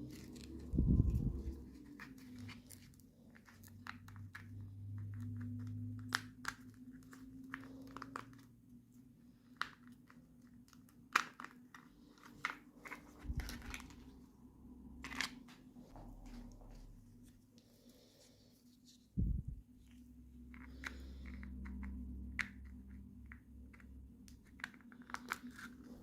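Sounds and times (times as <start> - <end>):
faint low hum: 0.0 - 26.0
plastic pieces clicking and tapping: 9.5 - 14.0, 20.5 - 25.9
packaging crinkling and tearing: 9.7 - 14.2.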